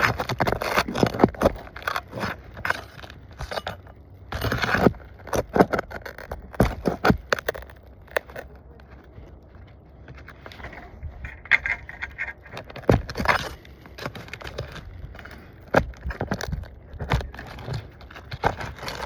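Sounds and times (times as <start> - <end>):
sharp clicks and knocks: 0.0 - 8.6
roof shingles scraping and crackling: 0.0 - 19.0.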